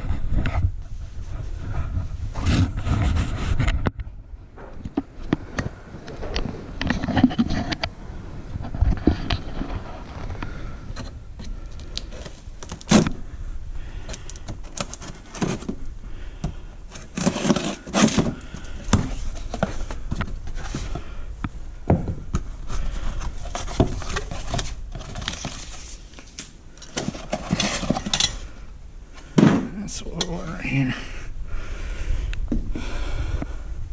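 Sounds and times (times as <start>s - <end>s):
clicks and rattles of drain parts: 26.8s - 28.5s.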